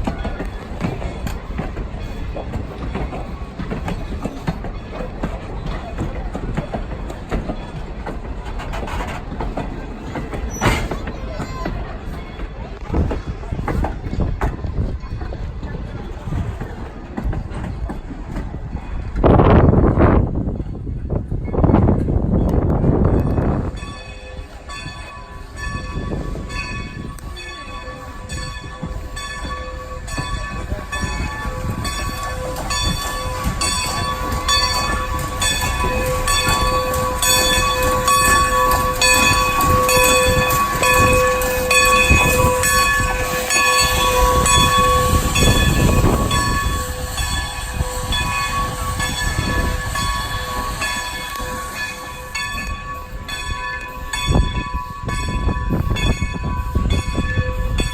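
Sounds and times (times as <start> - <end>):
train rumbling by: 0.0 - 57.9
bell ringing: 23.8 - 57.9.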